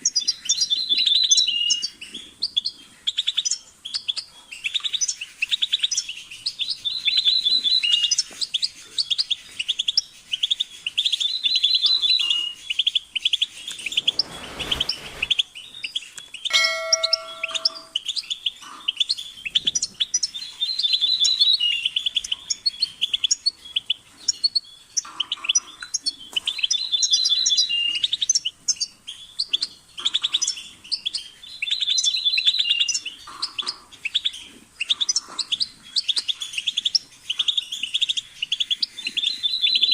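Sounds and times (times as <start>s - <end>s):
goldfinch twittering and trilling: 0.0s - 39.9s
chime-like tone: 16.5s - 18.0s.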